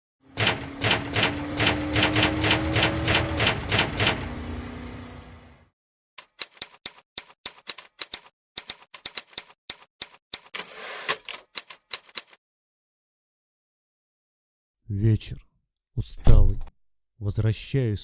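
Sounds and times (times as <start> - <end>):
typewriter keys clacking: 6.2 - 12.4.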